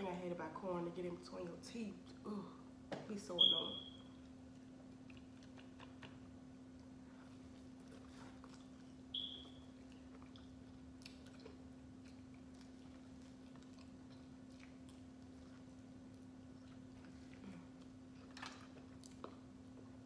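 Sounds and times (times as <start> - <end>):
steady low hum: 0.0 - 20.0
chewing corn on the cob: 4.2 - 20.0.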